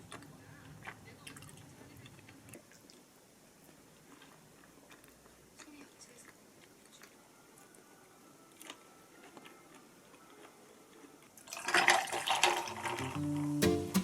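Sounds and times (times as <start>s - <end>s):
liquid pouring and splashing: 11.5s - 13.2s
guitar music: 12.7s - 14.0s.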